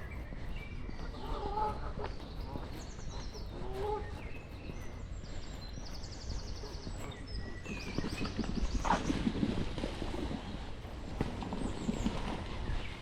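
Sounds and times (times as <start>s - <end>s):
songbirds singing: 0.0s - 13.0s.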